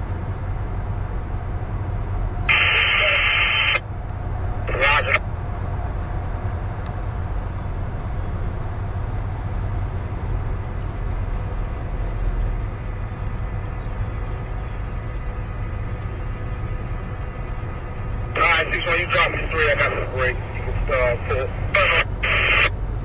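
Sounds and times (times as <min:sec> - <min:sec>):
freight train wheels rumbling on rail: 0:00.0 - 0:23.0.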